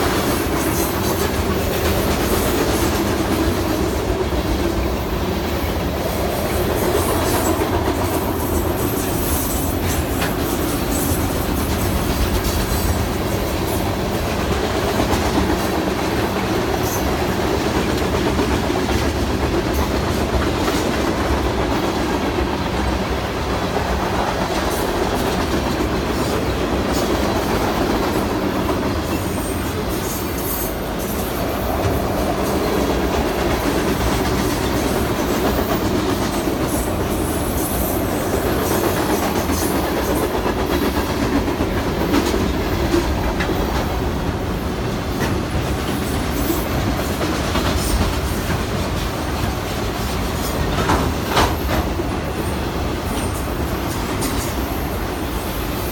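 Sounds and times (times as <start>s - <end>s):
train rumbling past: 0.0s - 55.9s
wheels clacking on rails: 0.0s - 55.9s.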